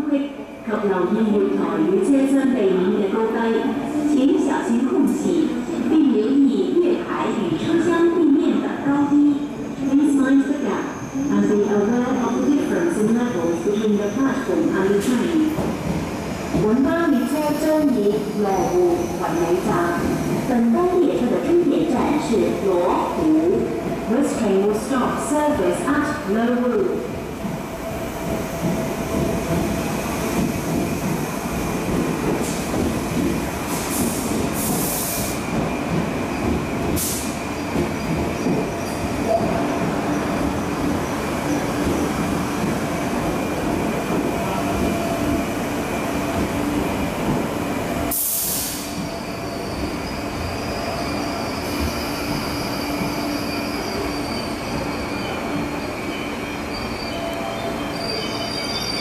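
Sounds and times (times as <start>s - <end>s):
train wheels rumbling: 11.7s - 59.0s
high wheel squeal: 48.7s - 59.0s.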